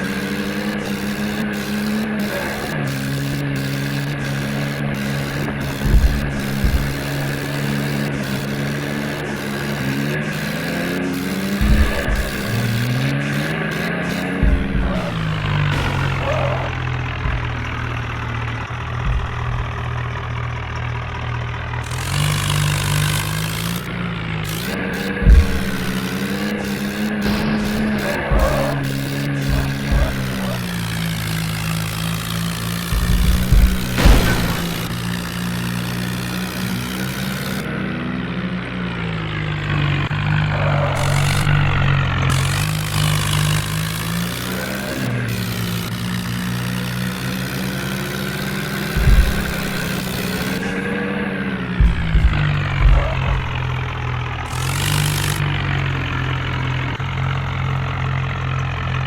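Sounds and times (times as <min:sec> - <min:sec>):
tractor engine running: 0:00.0 - 0:59.0
loud low thump: 0:03.4 - 0:08.6, 0:11.6 - 0:23.2, 0:23.8 - 0:36.0, 0:40.9 - 0:43.6, 0:48.5 - 0:55.5.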